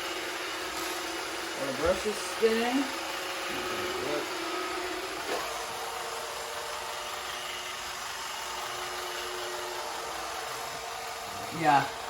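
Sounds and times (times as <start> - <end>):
robot vacuum whirring: 0.0 - 12.0.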